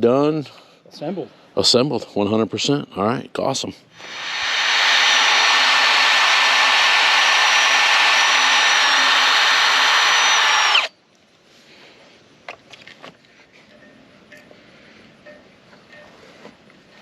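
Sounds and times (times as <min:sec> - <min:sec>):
power tool whining: 0:04.0 - 0:10.9.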